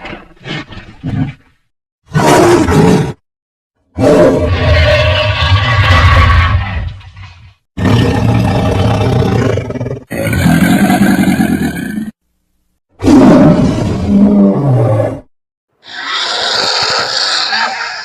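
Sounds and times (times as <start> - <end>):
deep rough creature roars: 7.8 - 12.2, 13.0 - 18.0.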